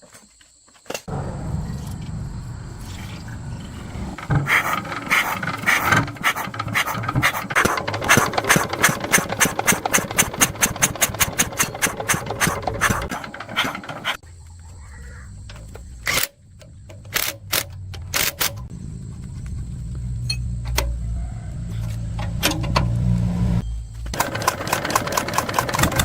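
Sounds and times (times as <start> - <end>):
hand tool scraping strokes: 2.8 - 14.2.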